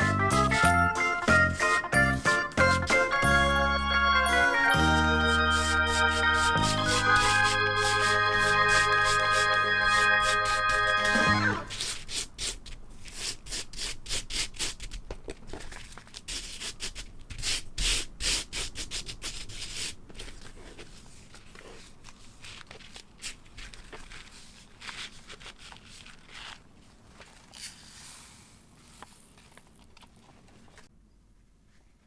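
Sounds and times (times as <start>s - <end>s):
sand brushed across a board: 0.0s - 3.1s, 5.0s - 14.8s, 23.2s - 29.4s.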